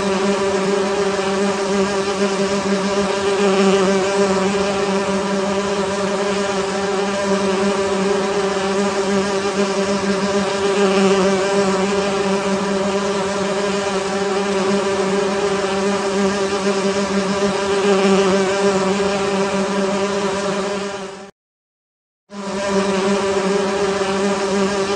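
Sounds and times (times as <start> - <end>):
bees buzzing: 0.0 - 21.3, 22.3 - 24.9.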